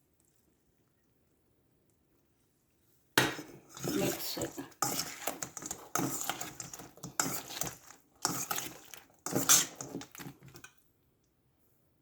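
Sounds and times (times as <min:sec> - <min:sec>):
utensil scraping a pan: 0:03.4 - 0:10.7.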